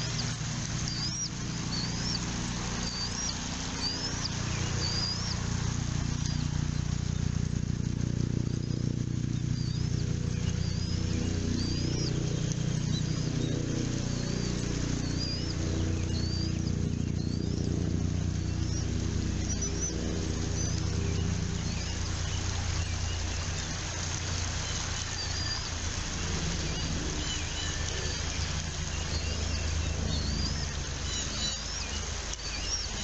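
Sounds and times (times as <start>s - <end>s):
eagle nestlings peeping: 0.0s - 23.6s
steady low rumble: 0.0s - 33.0s.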